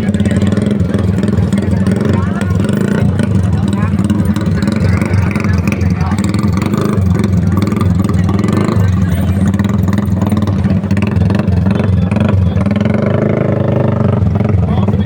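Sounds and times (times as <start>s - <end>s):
motorcycle engines running: 0.0s - 15.0s.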